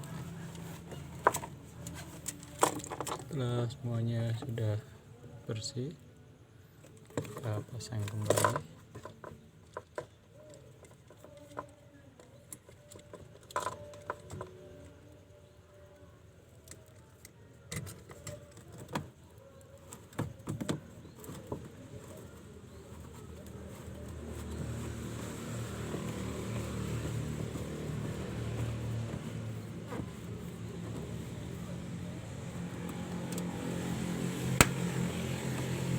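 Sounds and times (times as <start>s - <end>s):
plastic parts clicking and knocking: 1.2s - 3.4s, 6.8s - 14.7s.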